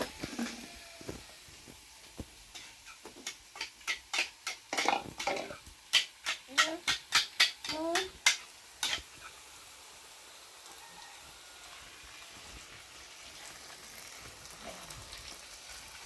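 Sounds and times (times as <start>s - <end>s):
dishes and utensils clinking: 2.5s - 9.3s.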